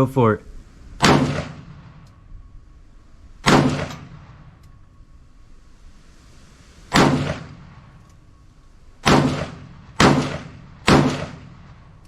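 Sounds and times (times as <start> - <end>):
rifle shots echoing: 1.0 - 2.0, 3.4 - 4.6, 6.9 - 8.0, 9.0 - 12.0.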